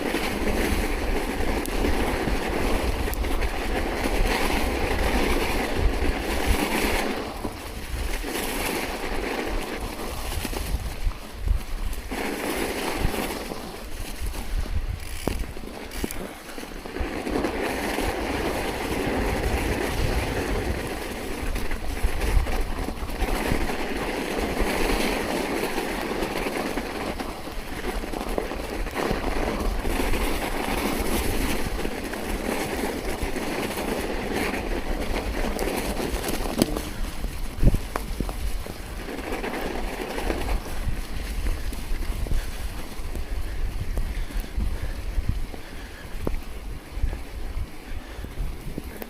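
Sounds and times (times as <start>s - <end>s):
rushing through snow: 0.0s - 49.0s
wind buffeting microphone: 0.0s - 49.0s.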